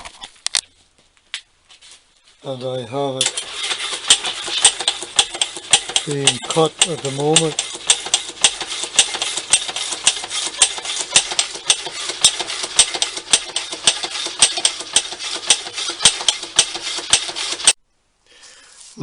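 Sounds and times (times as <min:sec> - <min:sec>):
machine tool cutting: 0:03.2 - 0:17.8
rapid regular ticking: 0:03.3 - 0:17.8.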